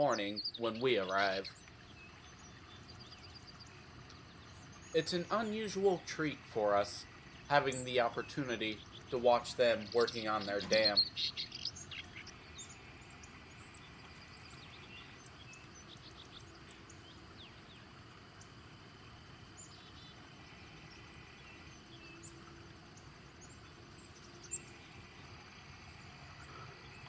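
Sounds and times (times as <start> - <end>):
insect trill: 0.0 - 27.0
high bird chirps: 7.0 - 18.6.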